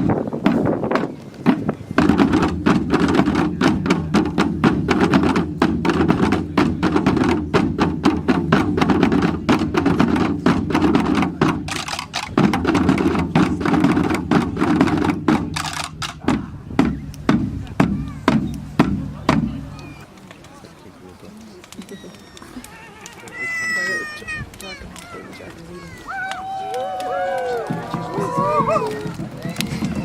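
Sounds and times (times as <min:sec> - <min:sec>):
drums beaten fast: 0:00.0 - 0:20.0, 0:27.3 - 0:30.0.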